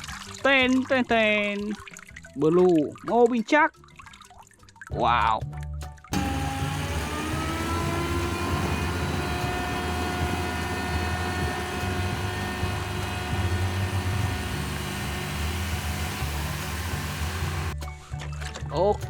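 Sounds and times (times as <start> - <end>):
engine-like drone: 6.2 - 17.8.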